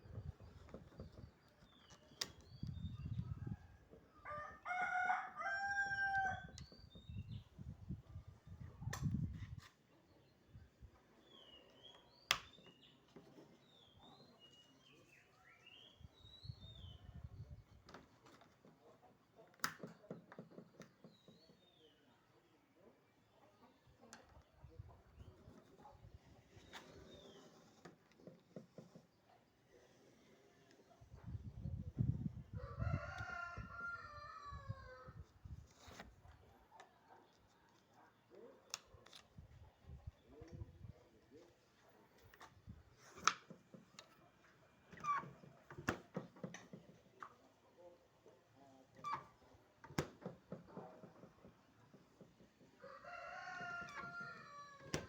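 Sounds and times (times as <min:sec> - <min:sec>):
faint birds chirping: 0:00.0 - 0:04.4, 0:09.8 - 0:49.8
rooster crowing: 0:04.3 - 0:06.5, 0:52.8 - 0:54.9.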